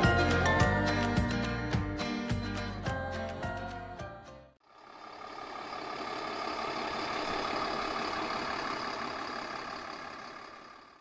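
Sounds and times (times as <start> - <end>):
heavy vehicle engine running: 4.6 - 11.0
road noise: 4.6 - 11.0.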